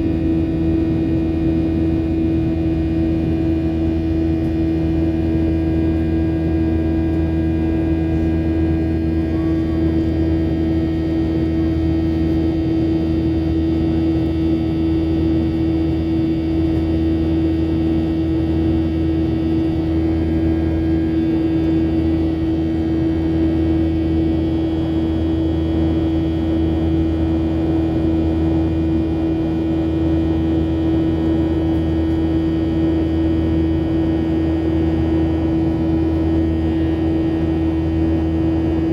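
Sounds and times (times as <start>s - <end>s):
jet engine drone in cabin: 0.0s - 38.9s.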